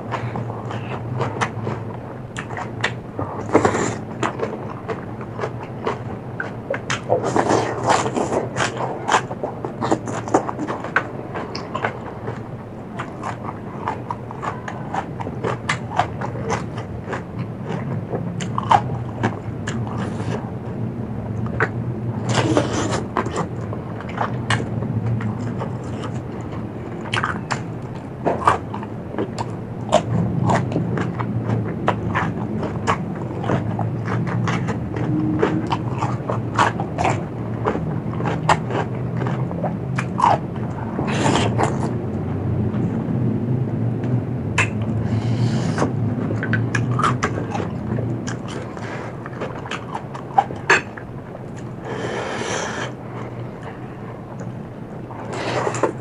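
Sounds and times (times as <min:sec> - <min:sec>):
person chewing crunchy food: 0:00.0 - 0:56.0
wet mouth clicks: 0:44.6 - 0:50.9, 0:51.5 - 0:53.0.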